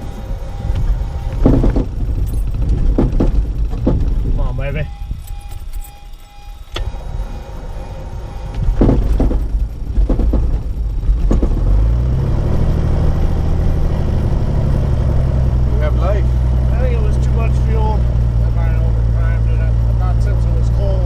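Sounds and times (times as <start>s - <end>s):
small aircraft engine sputtering: 0.0s - 21.0s.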